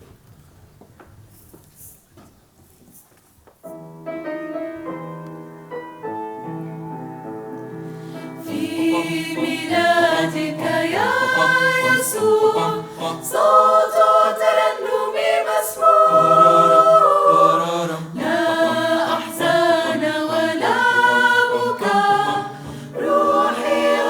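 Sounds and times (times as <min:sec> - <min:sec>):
choir singing held chords: 0:08.4 - 0:24.0.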